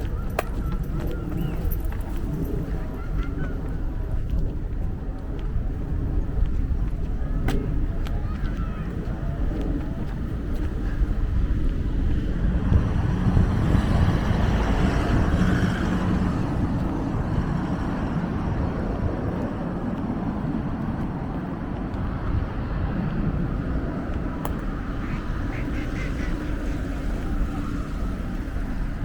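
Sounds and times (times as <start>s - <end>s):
road traffic noise: 0.0s - 29.0s
vehicle passing: 11.2s - 29.0s.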